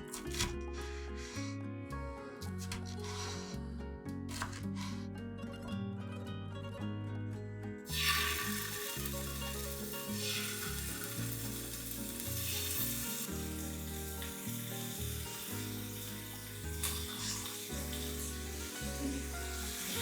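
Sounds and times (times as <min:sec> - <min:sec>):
background music: 0:00.0 - 0:20.0
food sizzling in oil: 0:07.9 - 0:20.0.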